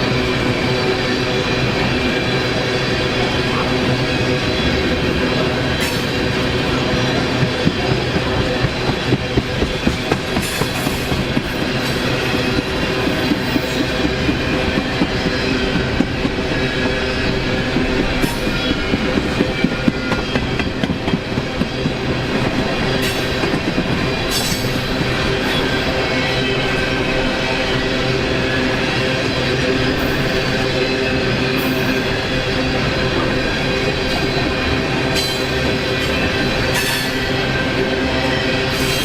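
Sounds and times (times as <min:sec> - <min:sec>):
train wheels clicking over rail joints: 0:05.3 - 0:25.6.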